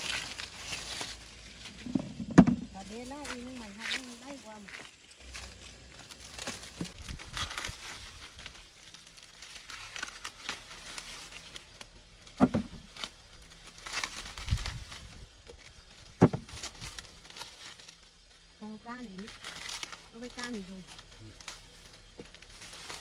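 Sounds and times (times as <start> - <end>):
dry leaves crinkling and tearing: 0.0 - 23.0
dull thump: 1.8 - 2.7, 12.4 - 12.8, 16.2 - 16.6.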